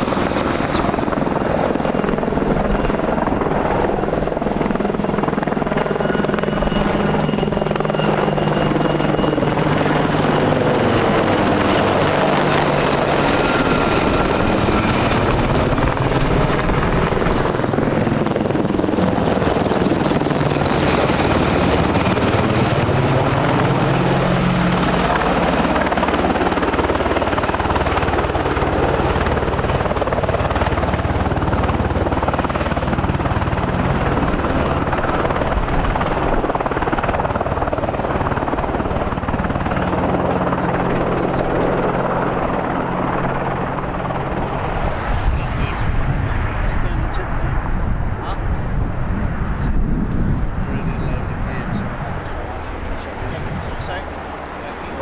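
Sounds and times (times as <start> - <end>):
helicopter rotors and turbines: 0.0 - 55.0.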